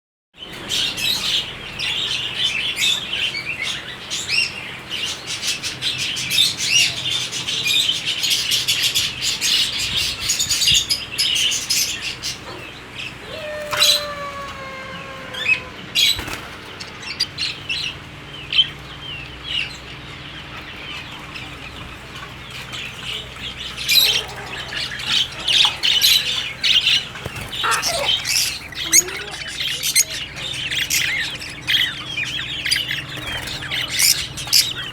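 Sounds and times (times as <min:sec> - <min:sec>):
caged birds chirping: 0:00.4 - 0:34.9
bird falling call: 0:13.1 - 0:17.4, 0:26.0 - 0:34.8.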